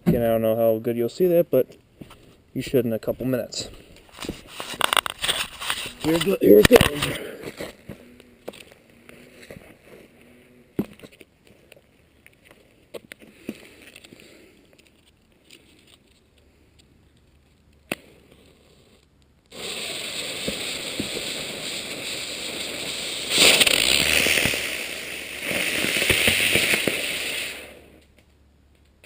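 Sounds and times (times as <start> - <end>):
firework hissing and crackling: 3.6 - 11.6, 17.9 - 28.1.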